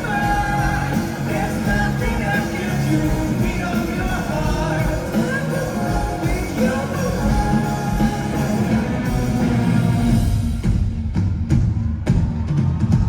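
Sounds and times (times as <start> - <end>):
person singing: 0.0 - 9.9
live rock band playing: 0.0 - 12.8.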